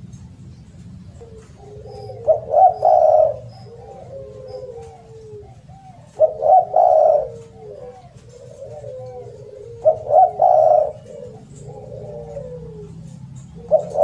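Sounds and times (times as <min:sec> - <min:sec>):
softer dove coos: 0:00.0 - 0:14.0
dove cooing loudly: 0:01.0 - 0:14.0.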